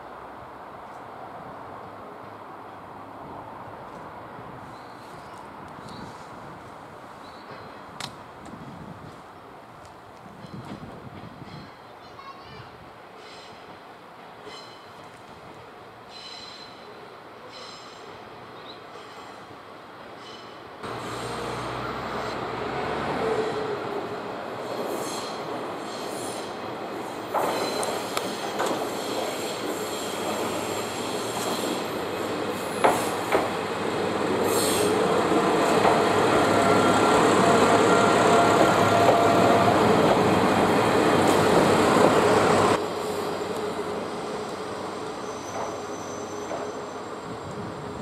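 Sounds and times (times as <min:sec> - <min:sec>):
train rumbling: 0:20.0 - 0:48.0
wheel squeal: 0:27.3 - 0:31.8, 0:45.2 - 0:47.2.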